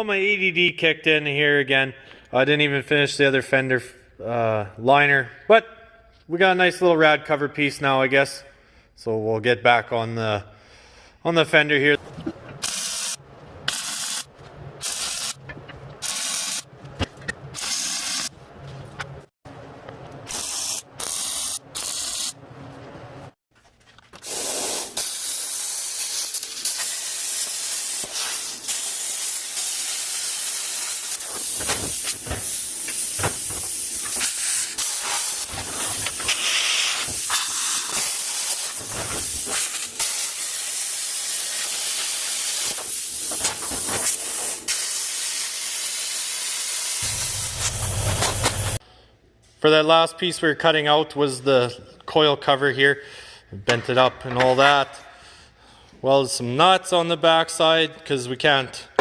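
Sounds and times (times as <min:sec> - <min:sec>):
plasma cutter hissing: 0:12.6 - 0:15.4, 0:16.0 - 0:16.6, 0:17.6 - 0:18.3, 0:20.3 - 0:22.4, 0:24.2 - 0:48.8.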